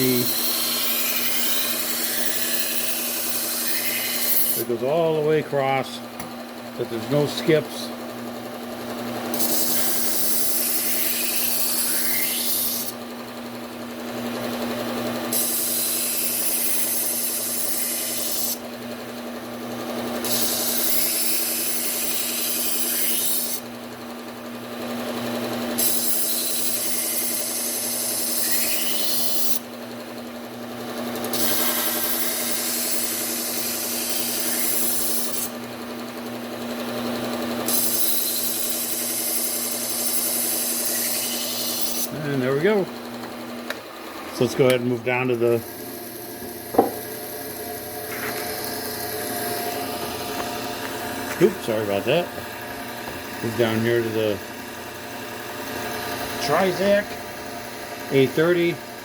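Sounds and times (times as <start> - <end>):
knife edge grinding on belt: 0.0 - 4.6, 9.3 - 13.0, 45.6 - 51.6
knife grinding on sanding belt: 0.0 - 4.8, 9.3 - 12.9, 15.3 - 18.6, 20.2 - 23.6, 25.8 - 29.6, 31.3 - 35.5, 37.7 - 42.3, 45.3 - 52.0
belt sander motor humming: 0.0 - 59.0.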